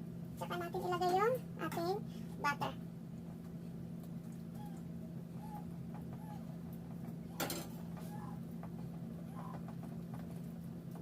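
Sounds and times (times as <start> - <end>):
steady low hum: 0.0 - 11.0
faint chickens clucking: 4.4 - 10.1.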